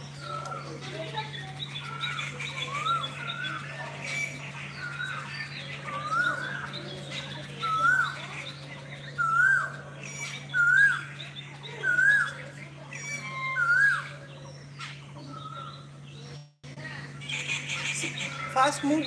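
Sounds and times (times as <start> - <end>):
other birds chirping: 0.0 - 19.0
steady low hum: 0.0 - 19.0
bird whistled call: 7.6 - 8.2, 9.1 - 11.1, 11.8 - 15.8.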